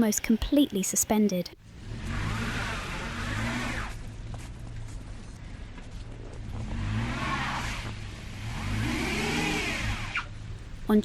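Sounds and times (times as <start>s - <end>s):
low rumble of car engines: 1.6s - 11.0s
vehicle passing close: 1.6s - 11.0s.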